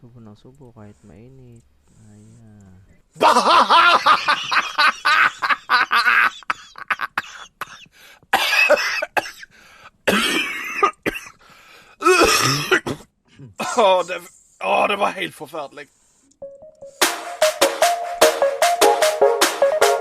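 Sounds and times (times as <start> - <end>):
person coughing: 6.4 - 9.5, 10.1 - 11.4, 12.0 - 14.0
person clearing throat: 10.1 - 11.4, 12.0 - 14.0.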